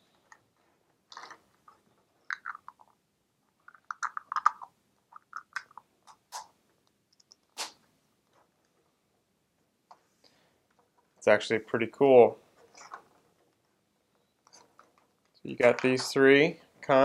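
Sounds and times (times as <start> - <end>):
plastic crinkling and clicking: 1.1 - 3.0, 12.6 - 16.2.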